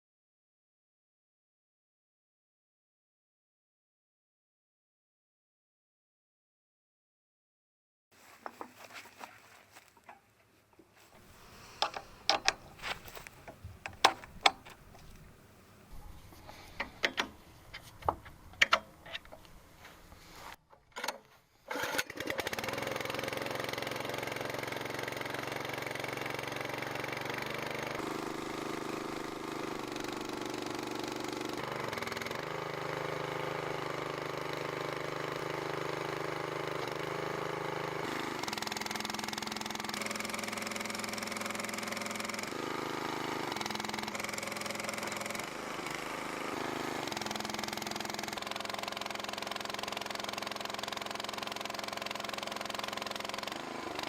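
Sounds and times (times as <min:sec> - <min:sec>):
log splitter engine running: 0:11.2 - 0:15.4, 0:21.8 - 0:54.0.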